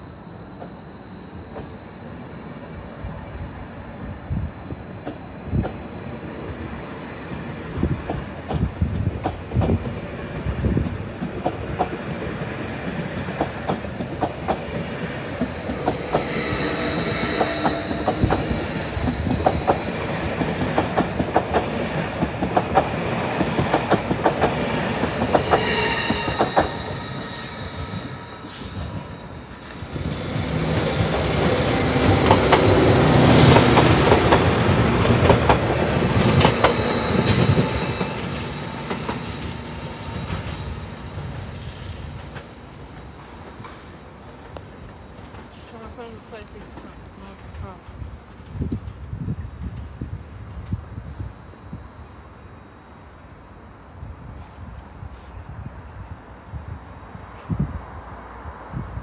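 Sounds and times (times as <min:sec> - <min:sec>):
high-pitched wheel squeal: 0:00.0 - 0:08.0, 0:15.0 - 0:20.6, 0:24.6 - 0:34.8
train rumbling past: 0:00.0 - 0:59.0.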